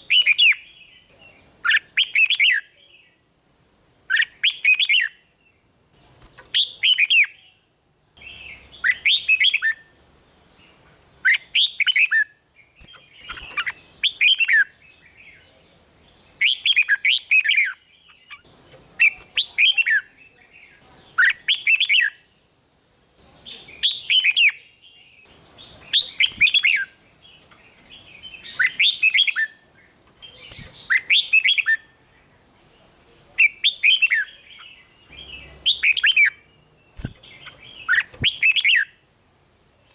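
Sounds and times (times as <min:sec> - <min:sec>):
bird singing whistled phrases: 0:00.0 - 0:00.9, 0:19.0 - 0:22.2, 0:23.5 - 0:25.2, 0:28.3 - 0:29.6, 0:33.4 - 0:36.4, 0:37.0 - 0:39.0.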